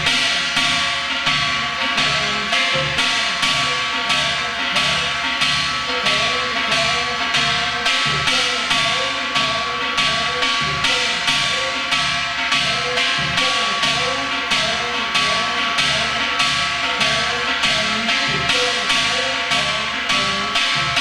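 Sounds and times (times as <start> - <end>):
drum strokes: 0.0 - 21.0
metallic ringing: 0.0 - 21.0.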